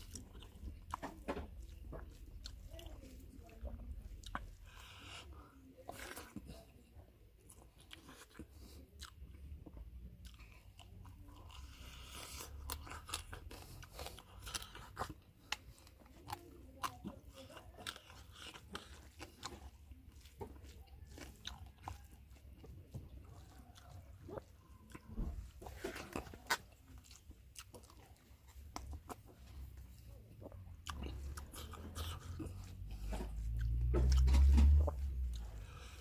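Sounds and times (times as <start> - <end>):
person chewing crunchy food: 0.0 - 6.7, 7.3 - 36.0.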